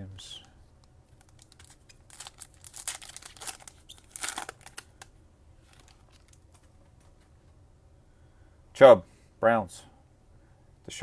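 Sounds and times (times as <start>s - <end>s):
foil wrapper crinkling: 1.1s - 6.7s.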